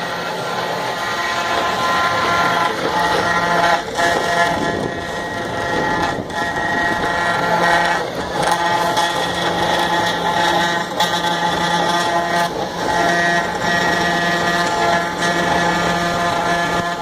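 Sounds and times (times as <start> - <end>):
router spindle milling wood: 0.0 - 17.0.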